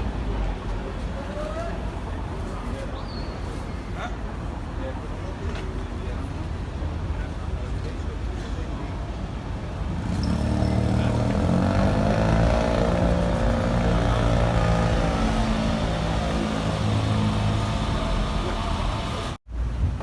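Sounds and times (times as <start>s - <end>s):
street rumble: 0.0s - 20.0s
large vehicle engine running: 9.8s - 19.4s.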